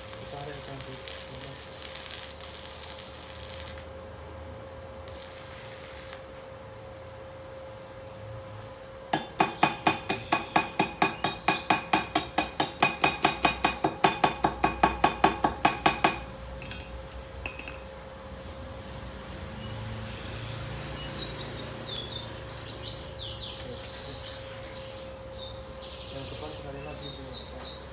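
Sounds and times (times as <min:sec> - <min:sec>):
hammer striking steel plate: 0:09.2 - 0:17.9.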